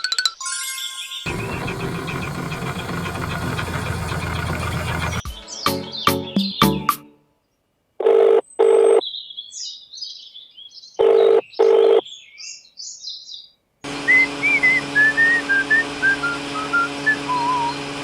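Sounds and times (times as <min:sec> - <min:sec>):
birds chirping: 0:01.3 - 0:06.8
backing music: 0:01.3 - 0:07.2
whistled tune: 0:14.0 - 0:18.0.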